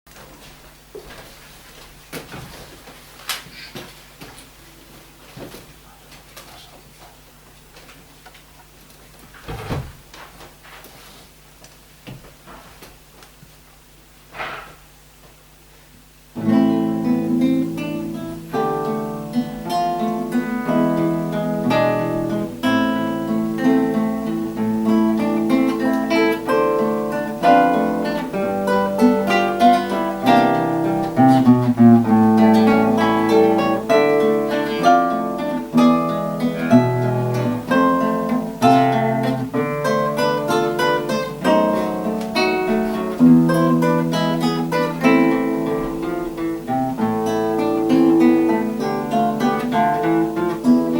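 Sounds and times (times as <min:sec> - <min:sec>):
acoustic guitars playing: 0:16.3 - 0:50.9.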